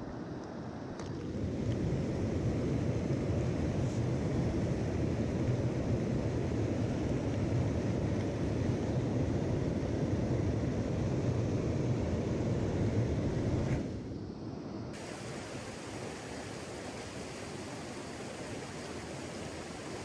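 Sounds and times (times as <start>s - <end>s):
stream rushing over rocks: 15.0s - 20.0s.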